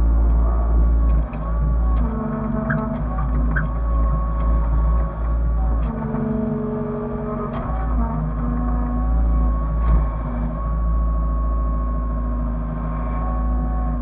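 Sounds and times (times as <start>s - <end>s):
excavator diesel engine rumbling: 0.0s - 14.0s
hydraulic whine: 0.0s - 14.0s.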